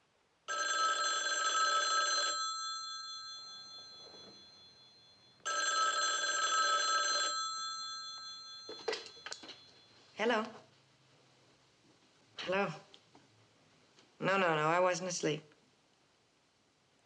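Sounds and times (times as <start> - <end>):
telephone bell ringing: 0.5 - 10.2.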